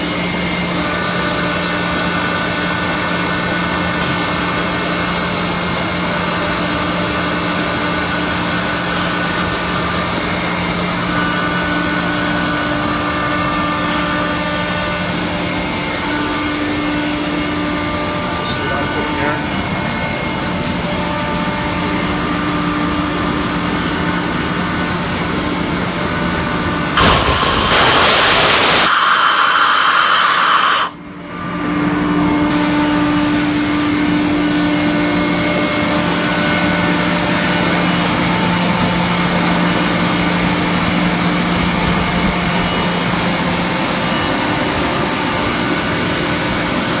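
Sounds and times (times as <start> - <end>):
air compressor humming: 0.0 - 47.0
escaping air hissing: 27.0 - 31.0.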